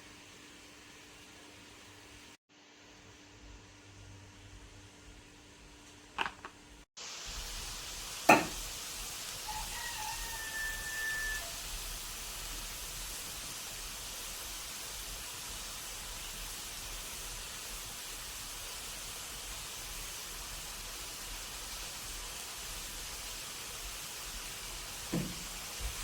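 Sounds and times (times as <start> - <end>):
steady hiss: 7.0 - 9.5
brief knock: 8.3 - 8.6, 25.1 - 25.4.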